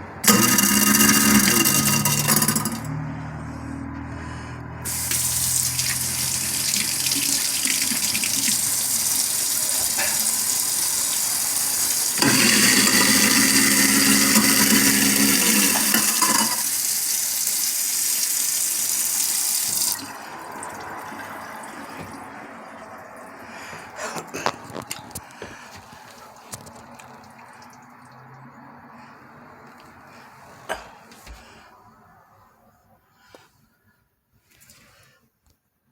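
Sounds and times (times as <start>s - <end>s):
garbage disposal motor hum: 0.0s - 23.9s
faucet water running into sink: 0.2s - 2.9s, 4.8s - 23.3s.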